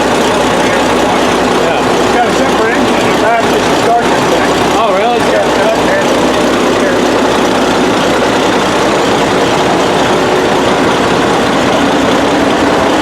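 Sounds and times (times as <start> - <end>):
power shovel engine running: 0.0 - 13.0.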